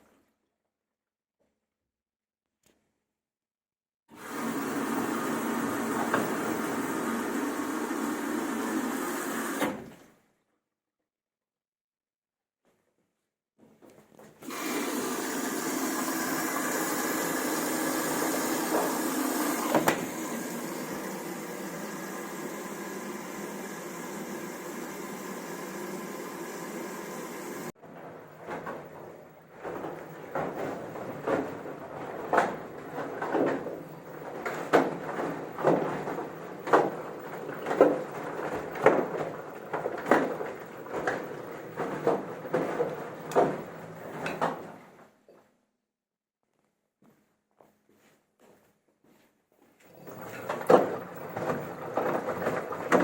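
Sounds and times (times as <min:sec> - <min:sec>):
machine running: 0:14.5 - 0:27.7
washing machine tub knocking: 0:29.7 - 0:43.7.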